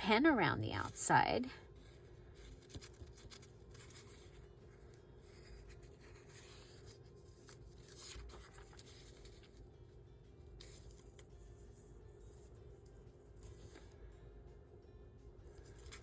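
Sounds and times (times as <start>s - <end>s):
low room hum: 0.0s - 16.0s
paper rubbing and scratching: 1.8s - 9.7s, 10.4s - 14.0s.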